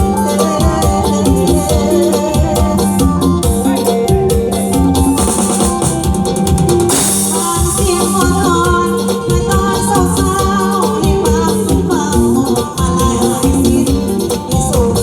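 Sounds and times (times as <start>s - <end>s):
live band playing: 0.0s - 15.0s
steady drum beat: 0.0s - 15.0s
cymbal crash: 6.9s - 8.2s.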